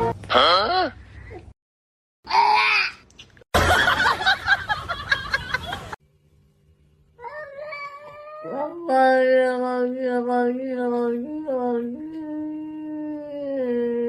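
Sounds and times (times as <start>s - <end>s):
cat yowling and meowing: 7.2s - 8.8s.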